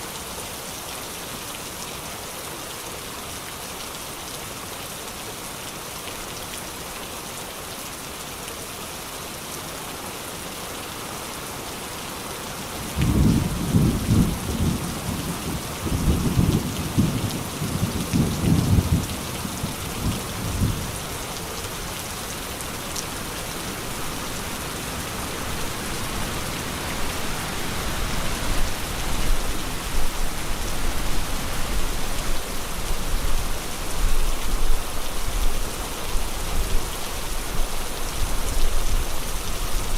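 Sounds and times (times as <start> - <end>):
rain hissing: 12.7 - 39.9.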